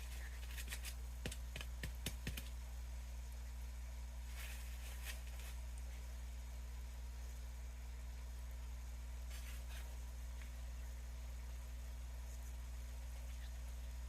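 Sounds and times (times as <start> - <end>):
steady low hum: 0.0 - 14.0
soft soil rustle: 4.2 - 6.3, 9.1 - 10.8.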